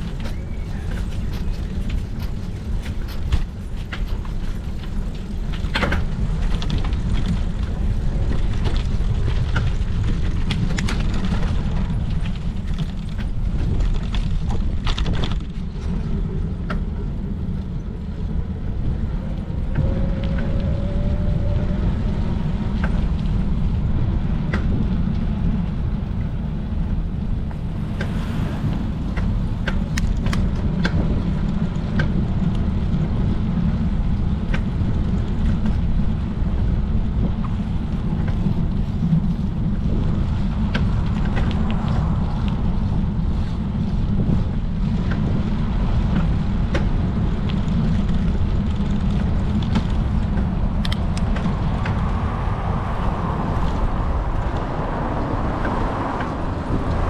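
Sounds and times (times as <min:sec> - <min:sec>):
bicycle clicks and rattles: 0:00.0 - 0:19.7, 0:46.0 - 0:51.9
wind and road noise: 0:00.0 - 0:57.0.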